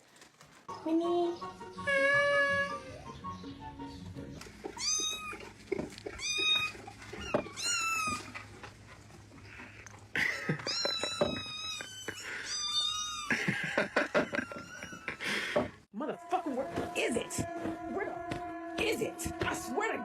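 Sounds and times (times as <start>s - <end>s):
cat meowing: 1.8s - 3.0s, 4.7s - 5.5s, 6.1s - 8.4s, 10.6s - 13.3s.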